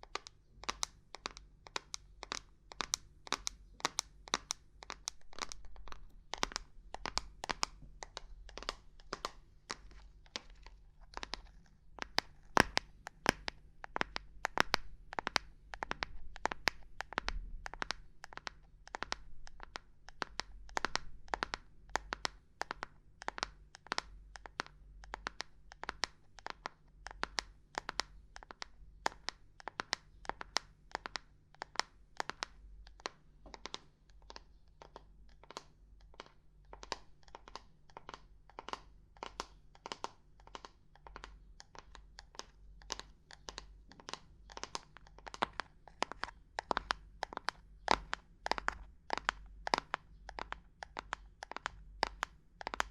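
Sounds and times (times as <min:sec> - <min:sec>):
fingers tapping on hard objects: 0:00.0 - 0:52.9.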